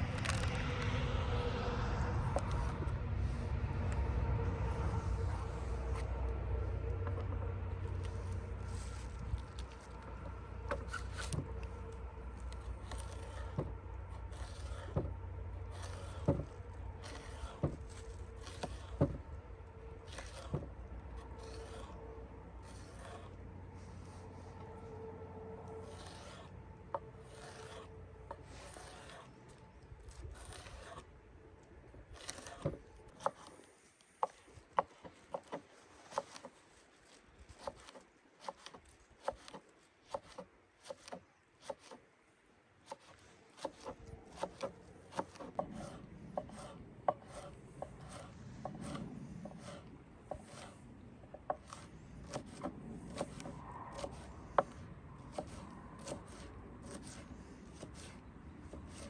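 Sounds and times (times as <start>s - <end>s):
rubbing or scraping: 0.0s - 42.1s, 42.8s - 59.0s.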